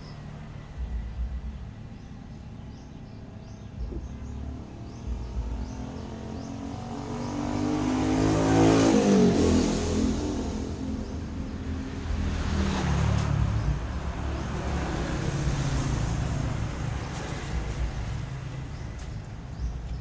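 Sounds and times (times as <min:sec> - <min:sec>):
engine passing by: 0:00.0 - 0:20.0.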